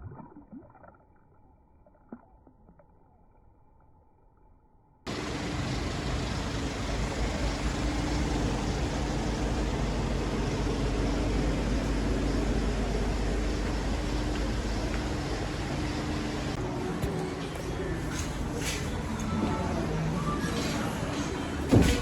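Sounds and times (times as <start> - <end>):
vehicle running rumble: 5.1 - 16.6.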